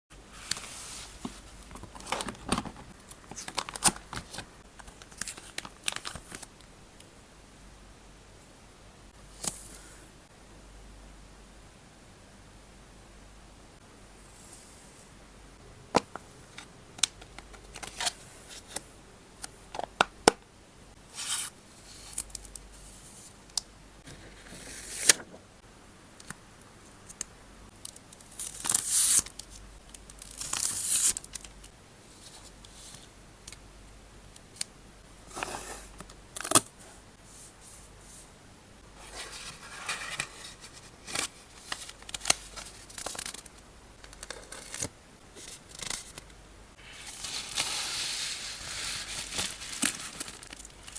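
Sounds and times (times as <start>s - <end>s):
steady background hiss: 0.1s - 50.9s
plastic packaging crinkling: 48.8s - 50.9s.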